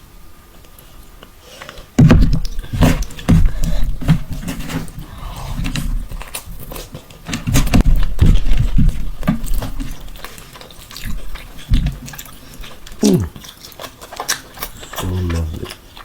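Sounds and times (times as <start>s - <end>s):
man chewing food: 0.4s - 16.0s
mouth clicks: 12.9s - 13.4s, 14.6s - 15.9s.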